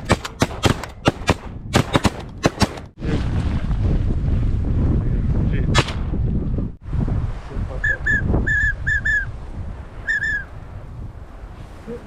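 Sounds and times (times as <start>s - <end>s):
wind buffeting microphone: 0.0s - 12.0s
whistled duck call notes: 7.8s - 9.3s, 10.0s - 10.5s.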